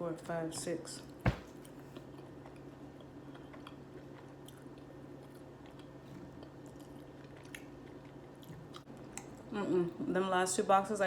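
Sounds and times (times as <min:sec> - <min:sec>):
soft close-up chewing: 0:01.7 - 0:09.5.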